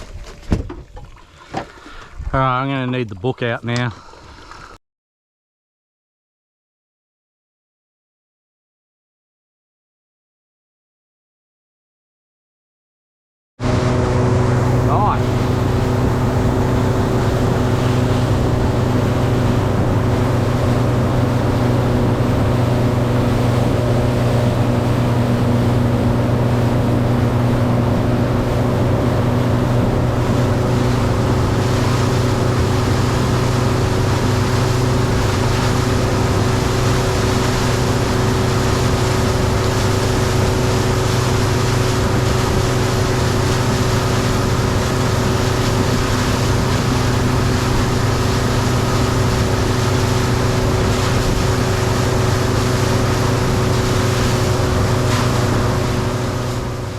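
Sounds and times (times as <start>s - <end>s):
outboard motor running: 0.0s - 4.7s, 13.6s - 56.9s
wind and water rushing: 13.6s - 56.9s.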